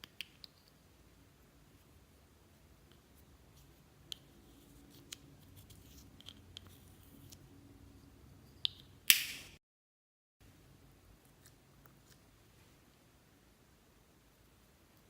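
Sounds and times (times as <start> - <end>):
sharp crackling pop: 8.7 - 9.6.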